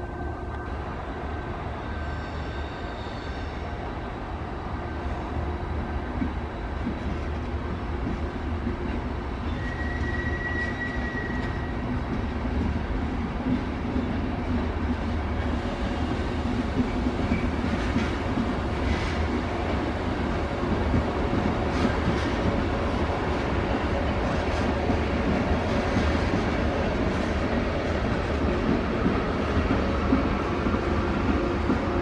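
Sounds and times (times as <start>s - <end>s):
train rumbling slowly: 0.0s - 32.0s
high wheel squeal: 9.5s - 11.8s.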